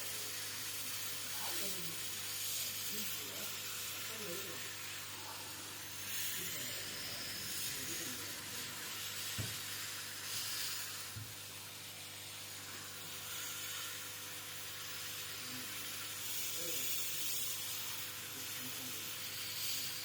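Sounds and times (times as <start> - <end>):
hot-air gun hissing: 0.0 - 20.0.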